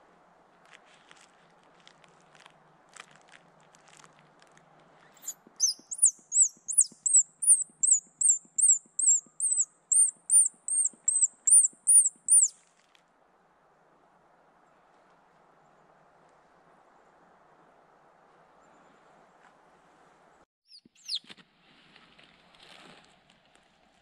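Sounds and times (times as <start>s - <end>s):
bird chirping: 5.0s - 12.5s, 20.7s - 21.2s.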